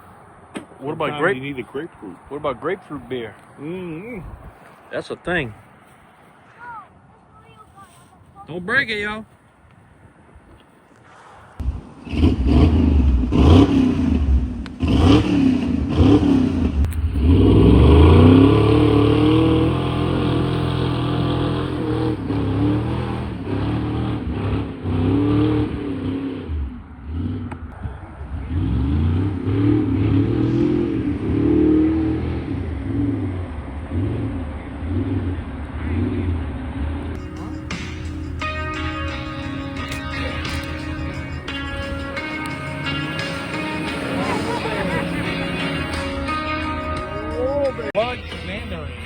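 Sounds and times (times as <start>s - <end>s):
vehicle engine revving: 11.1s - 49.0s.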